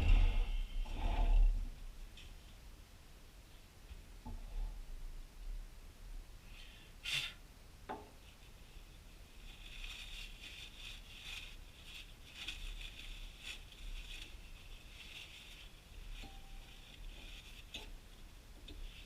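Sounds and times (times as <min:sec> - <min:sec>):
soft rubbing or scraping: 0:00.0 - 0:02.5, 0:08.2 - 0:19.0.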